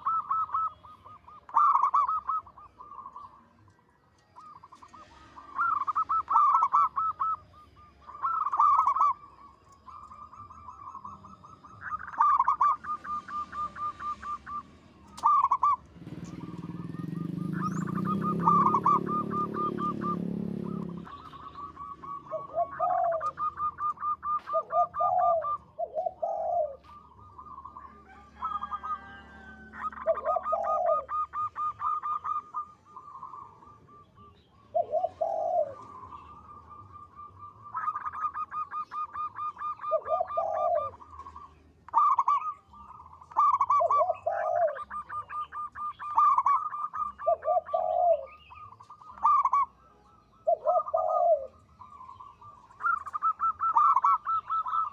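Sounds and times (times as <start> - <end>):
dove cooing: 0.0 - 3.7, 4.4 - 54.9.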